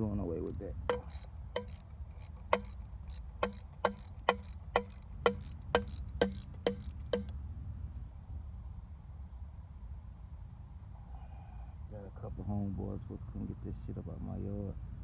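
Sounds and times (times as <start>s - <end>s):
socket ratchet wrench clicking: 0.5s - 7.3s.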